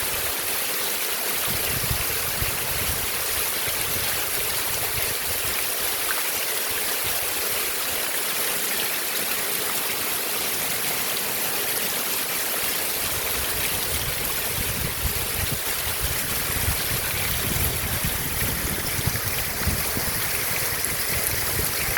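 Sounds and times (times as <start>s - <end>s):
heavy rain falling: 8.9s - 21.9s.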